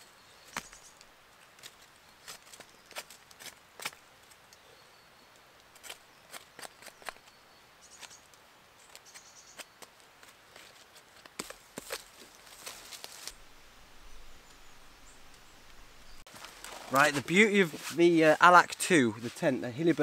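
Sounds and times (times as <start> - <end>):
faint high bird chirps: 6.1 - 9.8.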